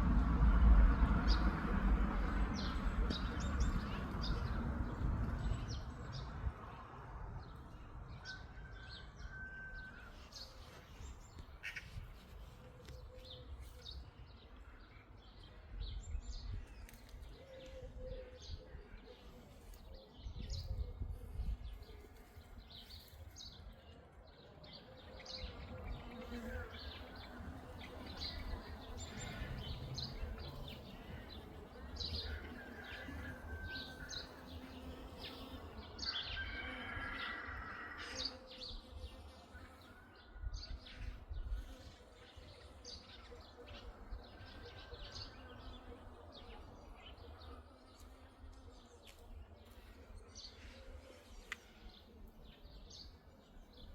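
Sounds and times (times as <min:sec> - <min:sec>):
low rumble: 0:00.0 - 0:06.0
bees buzzing: 0:25.5 - 0:39.9.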